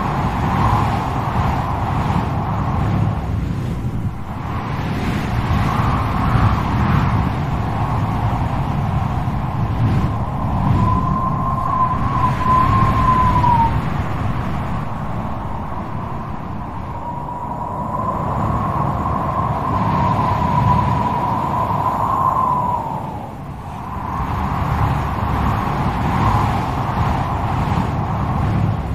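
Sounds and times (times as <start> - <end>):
howling wind whistle: 0.0 - 28.9
strong gusty wind: 0.0 - 28.9.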